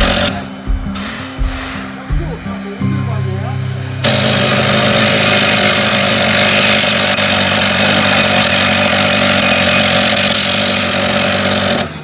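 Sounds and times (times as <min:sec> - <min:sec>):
train running: 0:00.0 - 0:12.0.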